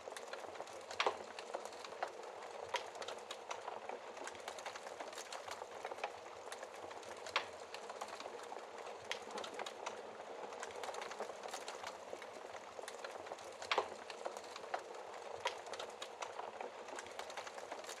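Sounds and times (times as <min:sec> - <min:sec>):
fireplace fire crackling: 0:00.0 - 0:18.0.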